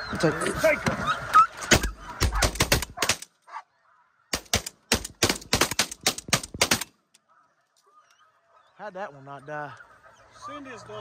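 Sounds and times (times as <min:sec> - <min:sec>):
geese honking: 0:00.0 - 0:04.4, 0:07.0 - 0:11.0
shotgun blasts: 0:01.7 - 0:03.3, 0:04.3 - 0:06.9.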